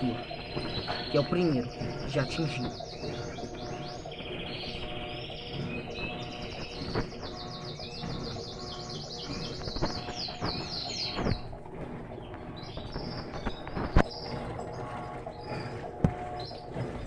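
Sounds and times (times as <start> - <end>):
songbird trilling: 0.0 - 11.6
low steady hum: 0.0 - 17.0.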